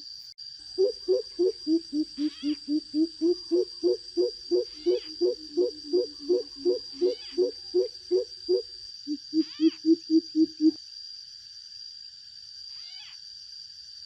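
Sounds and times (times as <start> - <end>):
bird deep hollow hoots: 0.8 - 10.8.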